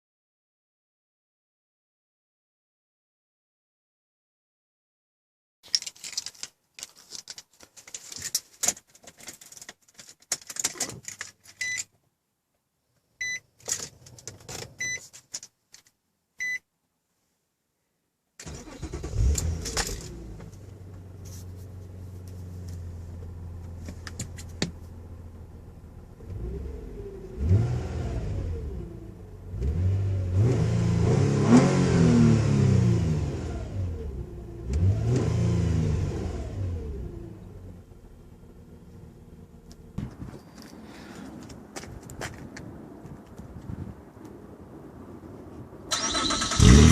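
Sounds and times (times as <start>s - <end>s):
car engine starting and revving: 18.4s - 21.2s, 25.1s - 39.9s, 45.9s - 46.9s.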